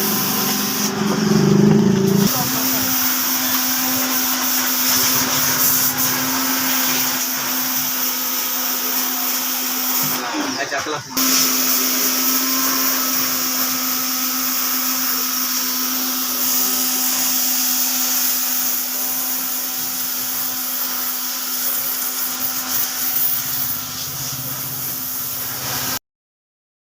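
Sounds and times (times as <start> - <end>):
motor hum: 0.0 - 2.8
water spray hissing: 0.0 - 10.3, 11.2 - 26.0.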